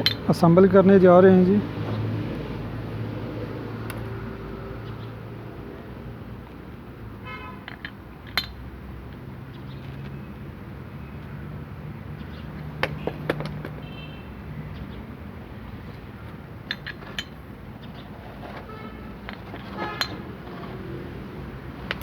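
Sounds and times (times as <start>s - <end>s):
metal parts clinking and knocking: 7.6s - 8.6s, 16.6s - 17.4s, 19.2s - 20.8s, 21.8s - 22.0s.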